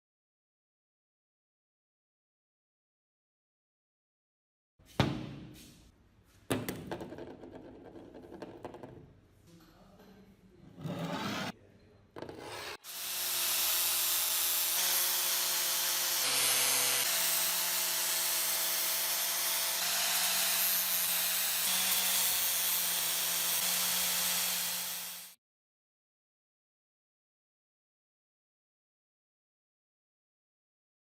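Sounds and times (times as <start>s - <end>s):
power tool abrasive hiss: 12.8s - 25.4s.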